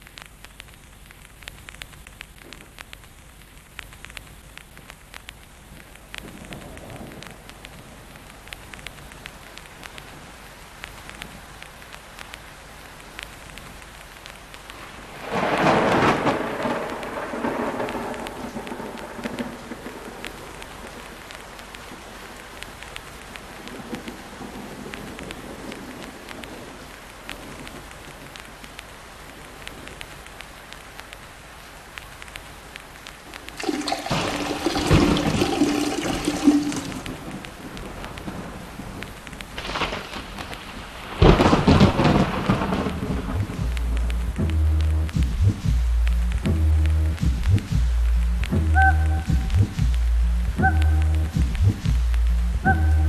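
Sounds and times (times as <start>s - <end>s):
steady rain patter: 0.0s - 53.0s
thunder rolls: 15.1s - 21.1s, 33.4s - 46.5s.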